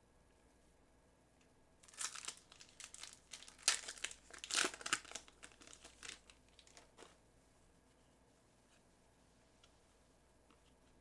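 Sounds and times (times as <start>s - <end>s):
foil wrapper crinkling and tearing: 1.8s - 6.9s.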